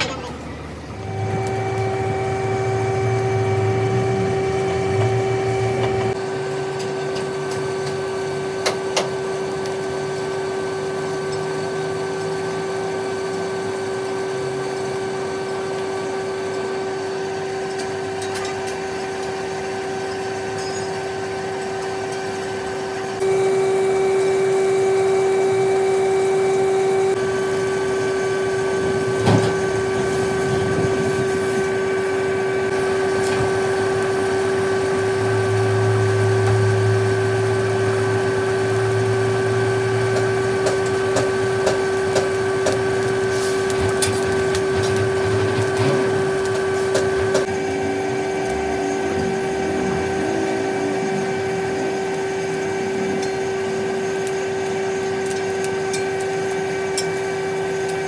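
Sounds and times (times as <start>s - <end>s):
workshop machine hum: 0.0s - 58.0s.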